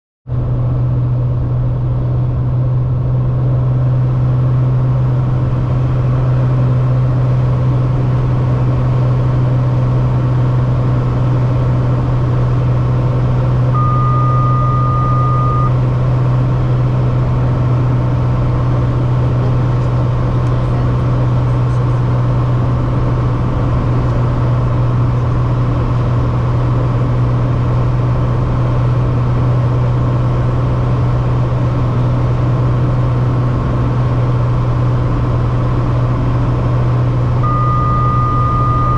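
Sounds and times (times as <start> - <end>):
aircraft engine and cabin drone: 0.3 - 38.9
steady electronic tone: 13.7 - 15.8, 37.4 - 38.9.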